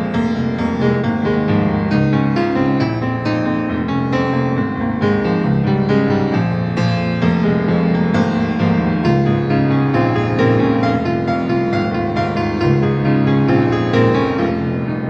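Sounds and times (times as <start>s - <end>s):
solo piano playing: 0.0s - 15.0s.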